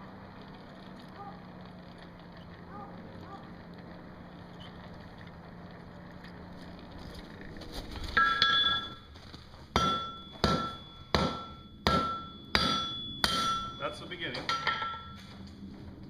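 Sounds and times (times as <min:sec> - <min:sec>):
hammer blows on anvil: 0:09.7 - 0:15.2.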